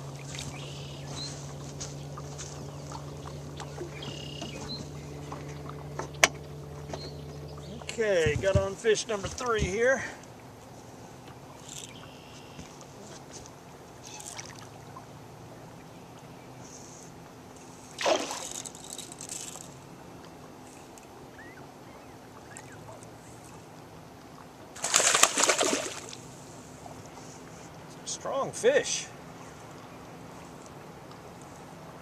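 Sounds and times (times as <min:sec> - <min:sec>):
fish splashing at water surface: 0:17.9 - 0:19.8, 0:24.8 - 0:26.4.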